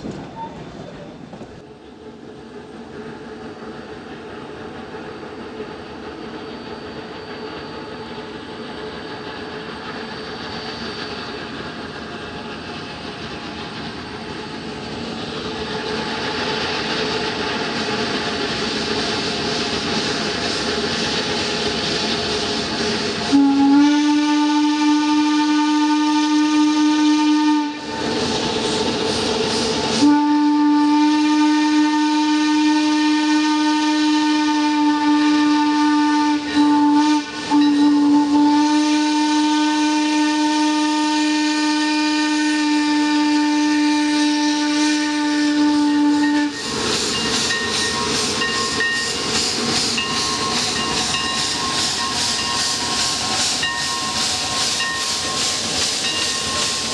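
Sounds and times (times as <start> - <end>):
steam hiss: 0.0 - 56.9
steam locomotive whistle: 23.1 - 28.2, 29.8 - 49.3.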